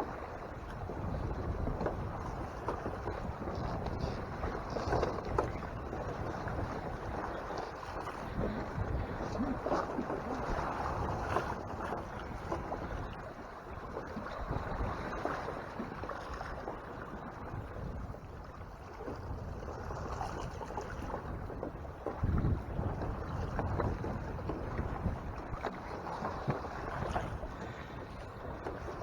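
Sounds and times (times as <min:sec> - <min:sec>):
water rushing past hull: 0:00.0 - 0:29.0
wind on microphone: 0:00.0 - 0:29.0.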